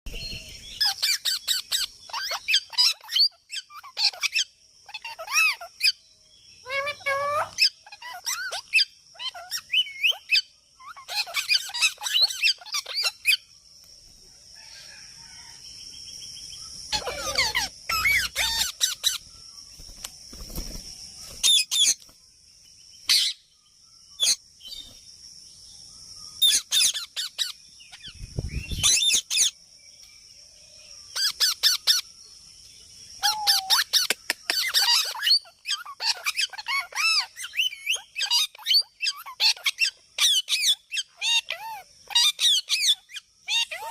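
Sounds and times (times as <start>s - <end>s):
parrot chattering: 16.9s - 19.2s, 33.2s - 43.9s.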